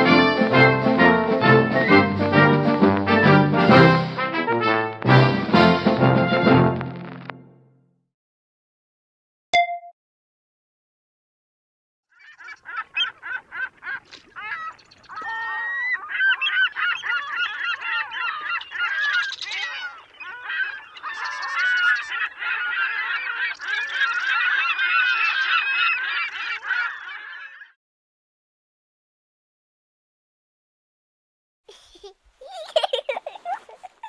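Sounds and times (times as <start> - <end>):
seagulls calling: 0.0 - 3.8, 12.1 - 27.8.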